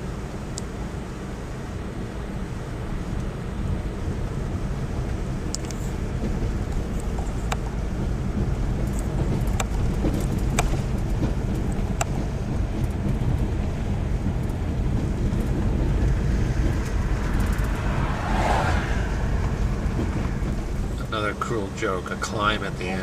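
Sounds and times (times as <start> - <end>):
car driving rumble: 0.0 - 23.0
wind noise on microphone: 3.4 - 21.1.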